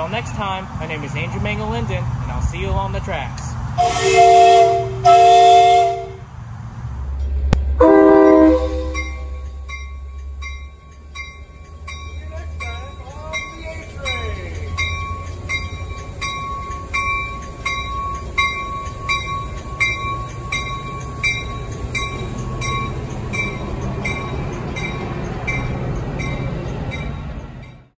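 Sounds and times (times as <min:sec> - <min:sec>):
train wheels rumbling on rails: 0:00.0 - 0:28.0
bell ringing: 0:08.2 - 0:27.9.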